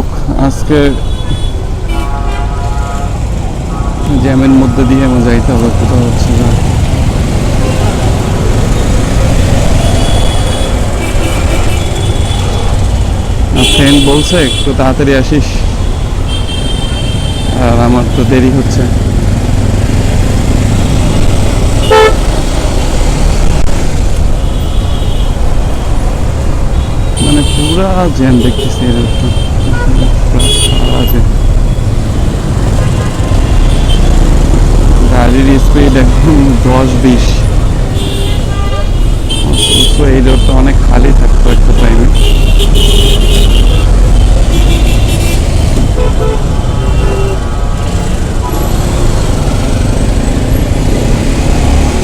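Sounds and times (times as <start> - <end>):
low rumble of road traffic: 0.0 - 52.0
vehicle horn toot: 0.9 - 5.0, 13.6 - 14.7, 21.8 - 22.3, 27.1 - 31.2, 38.0 - 40.6, 42.0 - 43.9.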